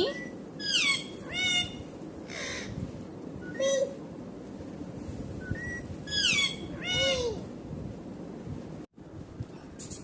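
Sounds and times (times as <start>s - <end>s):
parrot high call: 0.6s - 2.7s, 6.1s - 7.4s.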